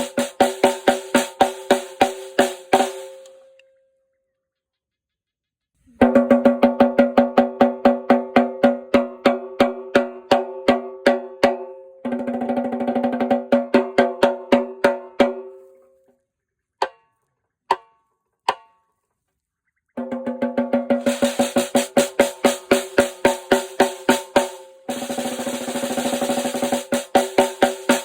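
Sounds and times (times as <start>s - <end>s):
snare drum strokes and roll: 0.0s - 3.3s, 20.0s - 28.0s.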